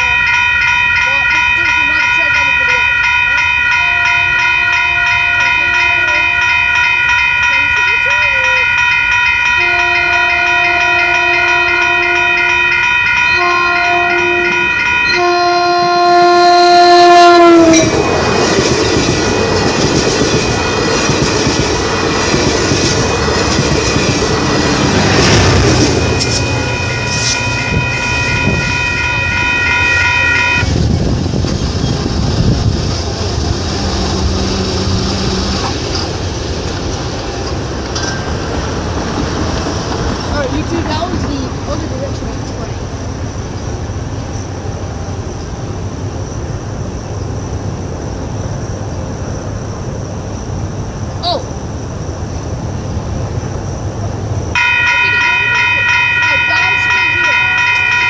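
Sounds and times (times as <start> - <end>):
train wheels clacking on rails: 0.0 - 15.2, 17.4 - 28.6, 29.2 - 46.6
train horn blasts: 3.8 - 6.8, 9.5 - 18.1, 24.8 - 30.9, 54.6 - 58.0.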